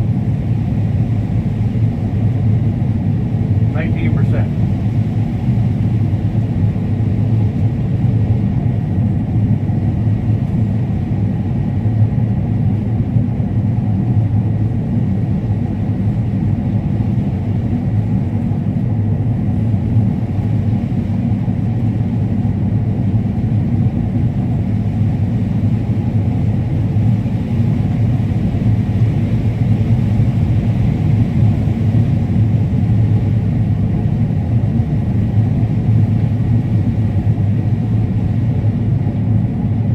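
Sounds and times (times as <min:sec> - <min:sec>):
combine harvester droning: 0:03.5 - 0:04.8.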